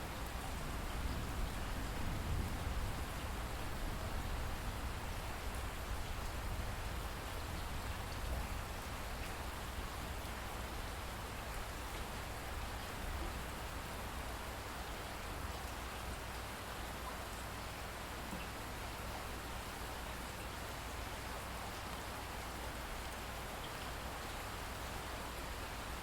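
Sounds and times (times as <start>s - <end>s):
rain hissing on a surface: 0.0s - 26.0s
faint raindrop ticks: 18.2s - 18.6s.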